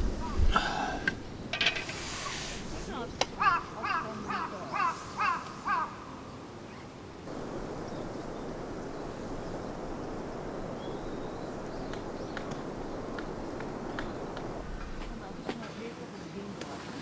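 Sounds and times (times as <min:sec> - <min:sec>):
crow cawing: 0:03.2 - 0:06.4
steady rushing noise: 0:07.3 - 0:15.6.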